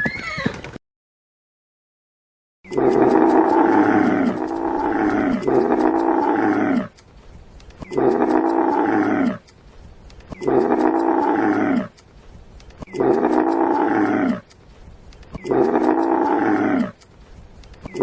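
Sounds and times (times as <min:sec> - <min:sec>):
animal calling: 0:02.7 - 0:06.9, 0:07.8 - 0:09.5, 0:10.3 - 0:12.0, 0:12.8 - 0:14.5, 0:15.4 - 0:17.0.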